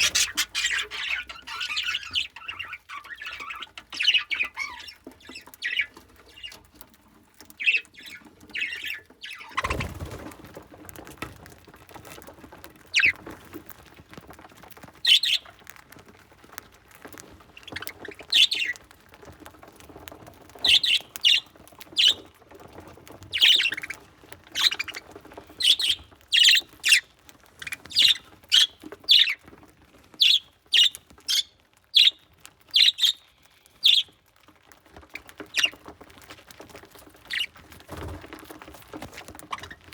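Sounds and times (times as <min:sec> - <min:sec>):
budgerigars chirping: 0:00.0 - 0:06.6, 0:07.6 - 0:09.9, 0:12.9 - 0:13.2, 0:15.0 - 0:15.5, 0:17.6 - 0:18.8, 0:20.6 - 0:22.3, 0:23.3 - 0:29.4, 0:30.2 - 0:34.1, 0:35.5 - 0:35.8, 0:37.3 - 0:37.5.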